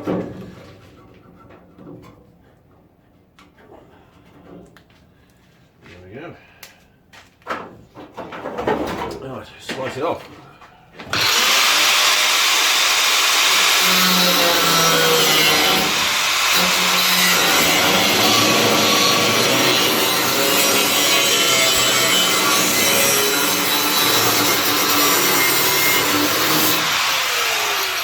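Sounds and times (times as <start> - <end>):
angle grinder cutting steel: 11.1 - 28.0.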